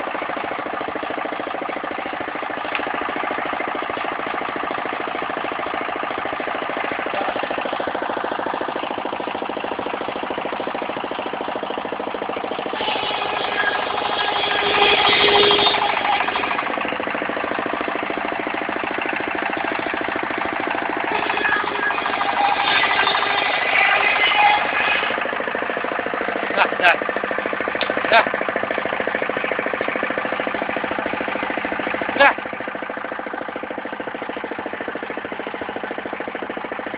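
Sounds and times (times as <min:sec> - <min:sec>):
sawmill engine chugging: 0:00.0 - 0:36.9
saw blade cutting wood: 0:09.7 - 0:27.0.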